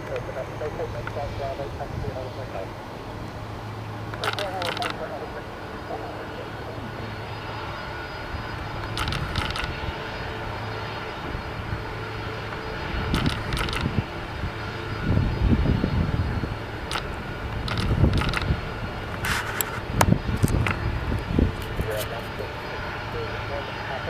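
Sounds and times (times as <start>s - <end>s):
jet engines running: 0.0s - 24.0s
sharp clicks: 4.1s - 5.0s, 8.8s - 9.8s, 13.1s - 14.0s, 16.9s - 18.6s.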